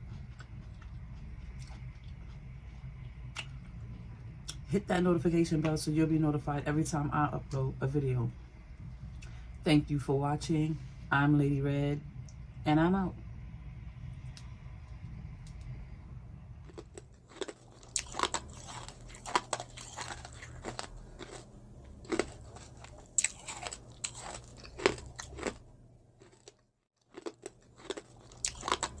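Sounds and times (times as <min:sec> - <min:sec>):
crunchy chewing of cucumber: 0:00.0 - 0:03.7, 0:16.6 - 0:25.6, 0:26.2 - 0:29.0.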